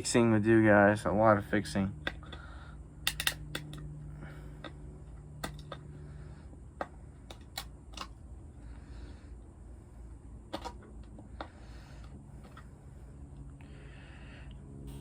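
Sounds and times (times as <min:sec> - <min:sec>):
faint steady hum: 0:00.0 - 0:15.0
small hard parts clicking: 0:02.0 - 0:03.9.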